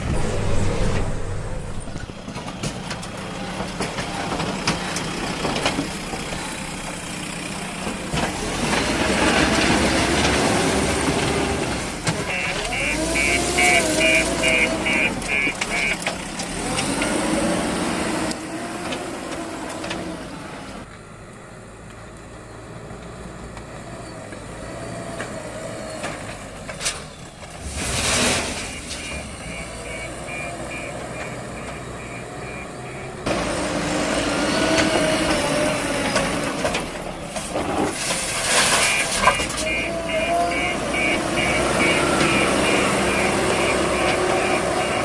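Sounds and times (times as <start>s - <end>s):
heavy diesel machinery running: 0.0s - 45.0s
repeating beep: 12.3s - 16.0s, 28.6s - 33.2s, 38.8s - 45.0s.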